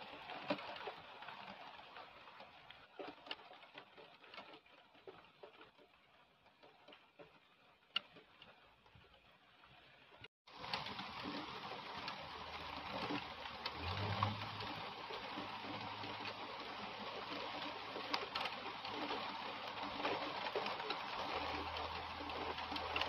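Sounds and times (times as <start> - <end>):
heavy rain on trees: 0.0 - 23.0.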